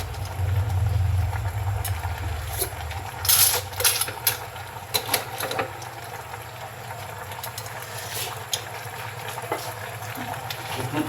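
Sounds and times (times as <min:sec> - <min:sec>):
low engine hum: 0:00.0 - 0:04.9.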